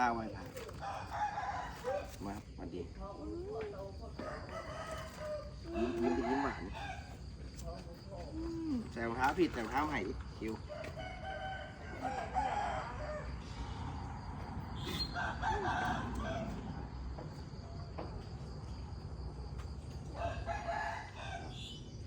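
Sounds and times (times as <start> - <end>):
rooster crowing: 0.6 - 2.4, 4.1 - 7.2, 10.4 - 17.4, 20.1 - 21.9.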